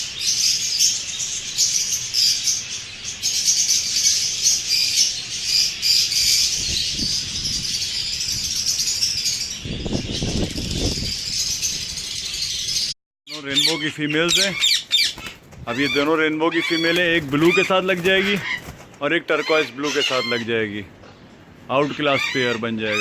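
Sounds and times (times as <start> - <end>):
parrots chirping and chattering: 0.0 - 23.0
wings flapping: 14.8 - 19.1.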